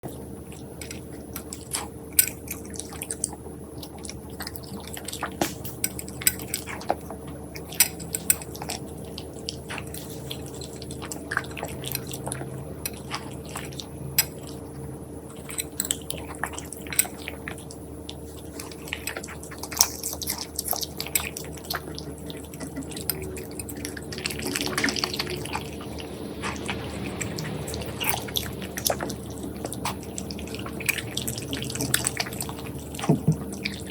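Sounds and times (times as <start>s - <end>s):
dog chewing and crunching food: 0.0s - 33.9s
steady low hum: 0.0s - 33.9s.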